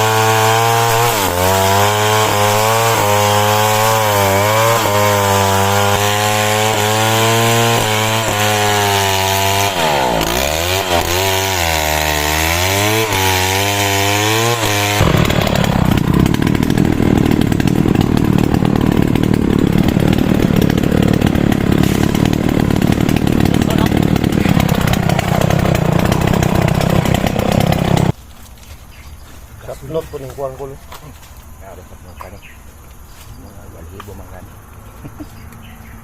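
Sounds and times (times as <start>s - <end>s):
small engine running: 0.0s - 28.1s
loud rough steady noise: 13.0s - 28.1s.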